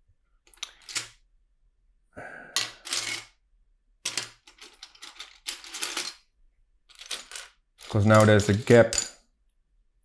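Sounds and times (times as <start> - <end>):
plastic bricks clattering and clicking: 0.5 - 1.2, 4.0 - 6.3, 6.9 - 9.1.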